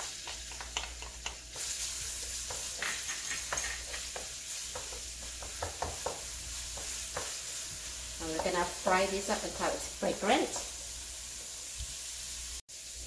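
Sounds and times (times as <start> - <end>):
spoon clicking and scraping pan: 0.0 - 8.7, 10.4 - 11.6
garlic sizzling in hot oil: 0.0 - 13.0.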